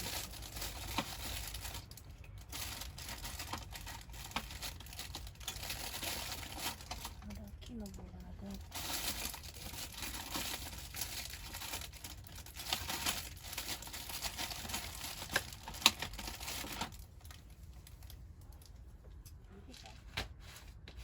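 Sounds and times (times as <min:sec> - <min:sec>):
plastic or paper crinkling: 0:00.0 - 0:18.7.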